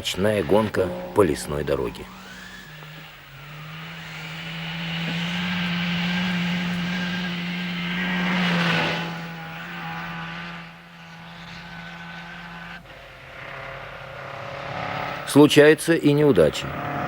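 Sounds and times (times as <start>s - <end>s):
rally car engine passing: 0.0s - 17.0s.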